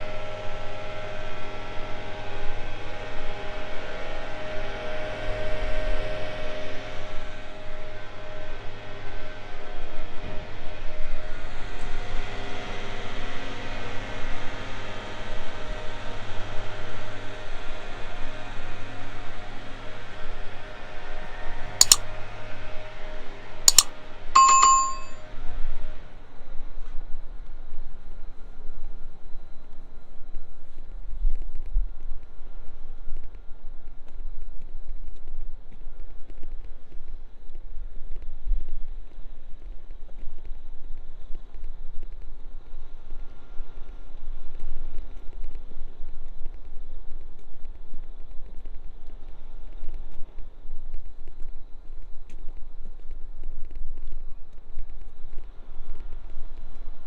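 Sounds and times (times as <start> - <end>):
sharp clicks: 23.7 - 25.1
bell ringing: 23.7 - 25.2.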